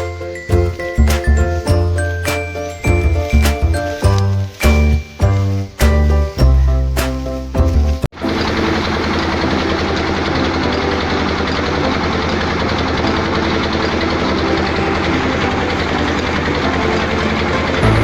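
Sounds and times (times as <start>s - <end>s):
harvesting machine engine running: 8.2s - 18.0s.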